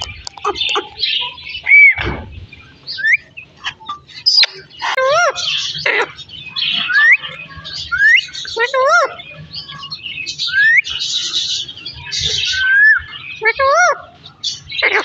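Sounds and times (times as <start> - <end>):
parrot chattering and clicking: 0.0 - 1.8.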